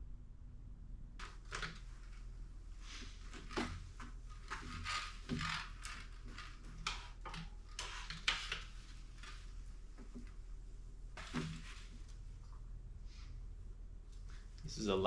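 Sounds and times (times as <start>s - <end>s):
bike parts clicking and knocking: 3.0s - 10.4s.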